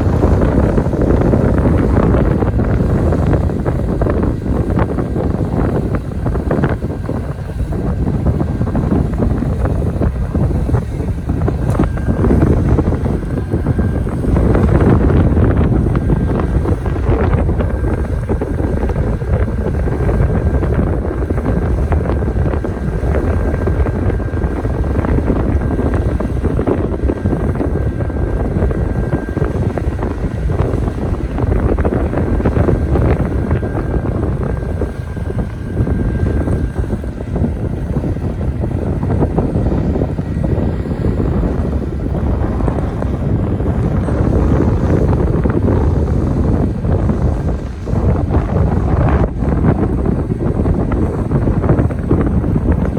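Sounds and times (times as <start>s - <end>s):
strong wind gusting on microphone: 0.0s - 52.9s.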